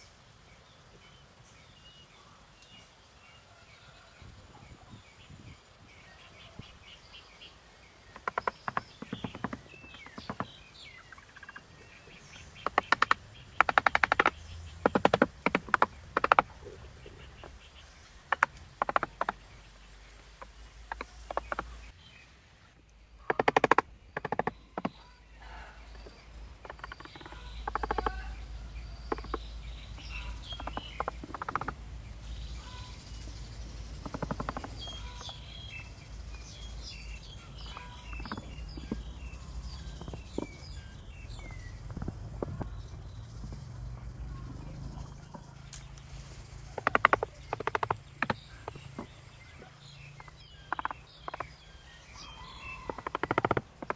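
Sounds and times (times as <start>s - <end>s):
birds chirping: 0.0s - 53.9s
sharp knocks and taps: 8.1s - 19.7s, 20.3s - 21.9s, 23.3s - 25.0s, 25.9s - 28.2s, 29.0s - 31.8s, 33.8s - 35.5s, 37.2s - 51.6s, 52.8s - 53.9s.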